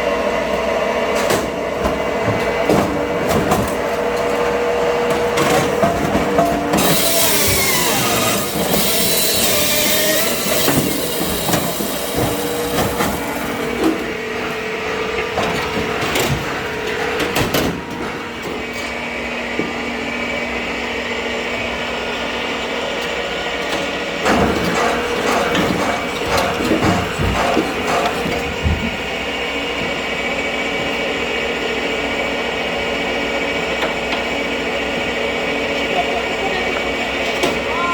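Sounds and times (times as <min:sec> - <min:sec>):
machine hum: 0:03.6 - 0:20.2.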